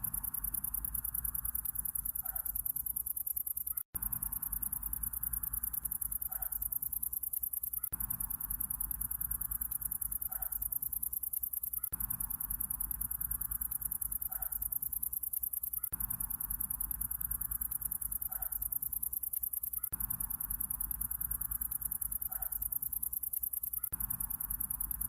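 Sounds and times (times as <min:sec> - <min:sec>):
faint calls: 0:00.0 - 0:07.0, 0:07.6 - 0:11.0, 0:14.0 - 0:15.0, 0:17.4 - 0:23.0
crickets chirring: 0:00.0 - 0:25.0.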